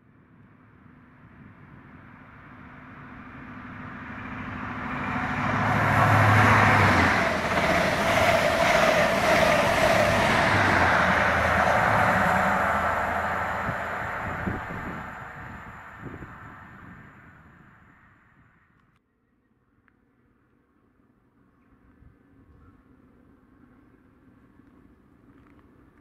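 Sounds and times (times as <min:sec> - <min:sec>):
wheels rushing on rail: 0:00.3 - 0:18.4
diesel train engine: 0:00.7 - 0:18.3.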